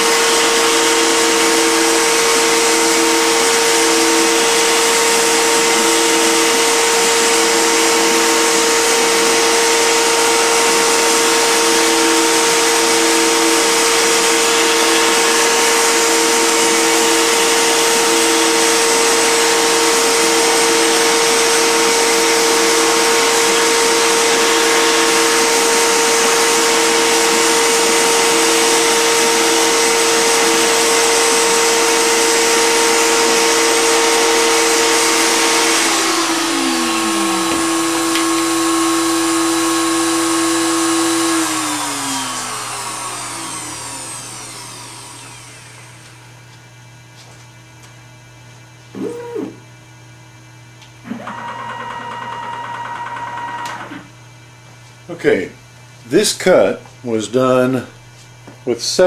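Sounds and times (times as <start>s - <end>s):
router spindle whine: 0.0s - 46.5s, 48.9s - 49.7s, 51.0s - 54.1s
low machine tone: 48.9s - 49.8s.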